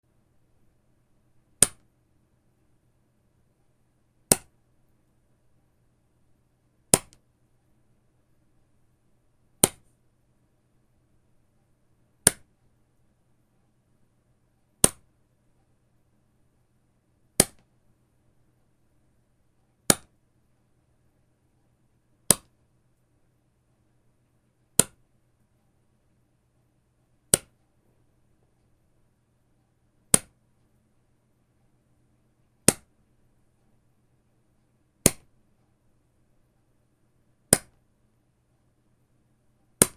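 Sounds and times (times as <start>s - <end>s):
rubber band snapping: 1.6s - 1.8s, 4.3s - 4.5s, 7.0s - 7.2s, 9.6s - 9.8s, 12.3s - 12.5s, 14.8s - 15.1s, 17.4s - 17.6s, 19.9s - 20.1s, 30.1s - 30.3s, 32.7s - 32.9s, 35.0s - 35.3s, 37.5s - 37.8s.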